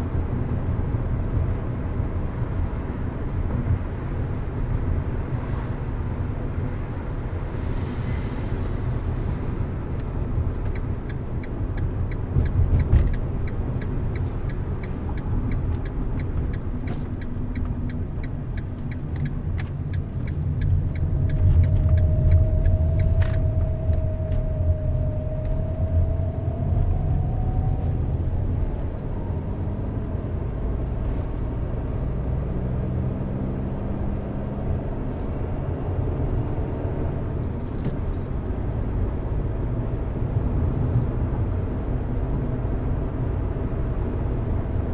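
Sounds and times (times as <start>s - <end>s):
engine and tyre rumble: 0.0s - 44.9s
fast light ticking: 10.6s - 24.2s
steady rising whine: 20.6s - 30.1s.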